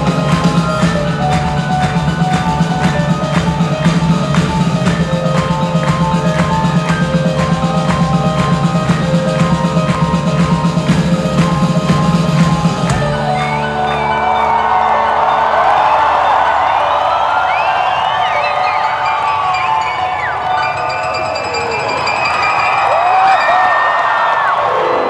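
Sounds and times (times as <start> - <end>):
steady drum beat: 0.0 - 13.2
rock band playing live: 0.0 - 15.4.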